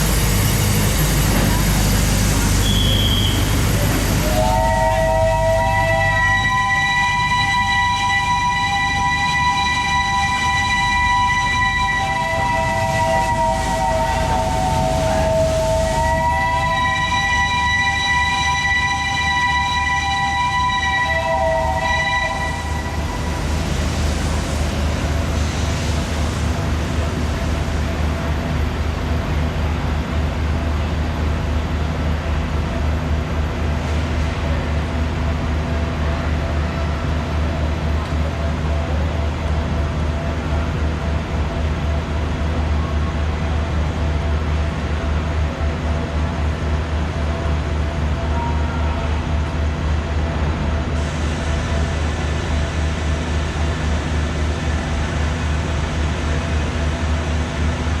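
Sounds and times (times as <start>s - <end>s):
locomotive engine humming: 0.0s - 58.0s
hiss: 23.2s - 27.8s, 50.9s - 55.3s.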